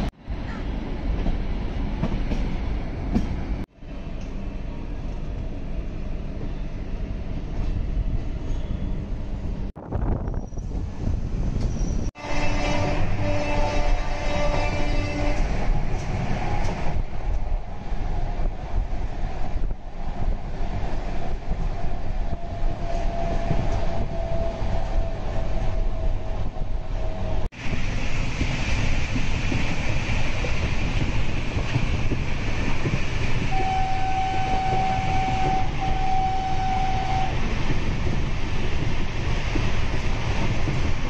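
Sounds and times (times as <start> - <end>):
train wheels on rails: 0.0 - 41.0
rushing air: 7.4 - 35.9
train horn blasts: 12.2 - 16.9, 33.5 - 37.4.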